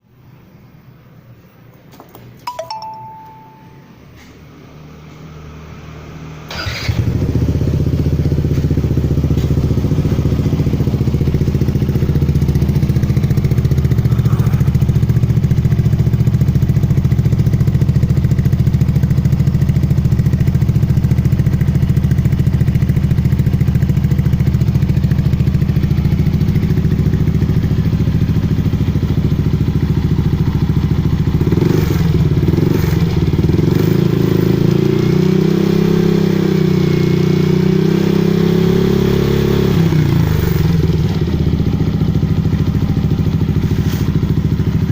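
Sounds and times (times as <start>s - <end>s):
scooter engine starting and idling: 2.1s - 44.9s
short beep: 2.5s - 4.1s.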